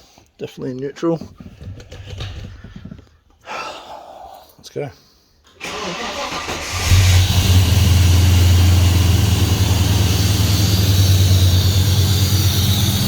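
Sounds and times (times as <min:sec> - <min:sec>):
car engine starter cranking: 0:05.6 - 0:13.0
v eight engine idling: 0:05.8 - 0:13.0.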